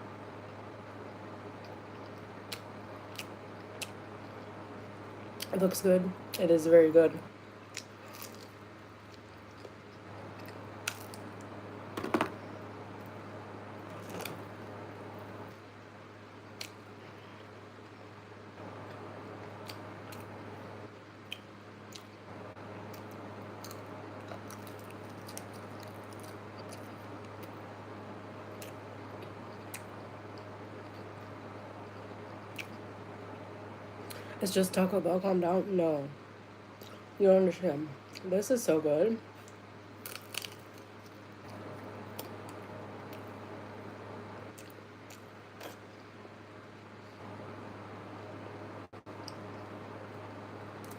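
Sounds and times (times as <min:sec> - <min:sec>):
steady low hum: 0:00.0 - 0:50.9
person chewing food: 0:07.7 - 0:11.5, 0:21.2 - 0:22.2, 0:22.8 - 0:27.5, 0:31.8 - 0:32.8, 0:39.4 - 0:43.3
sharp clicks and crunches: 0:39.4 - 0:41.6.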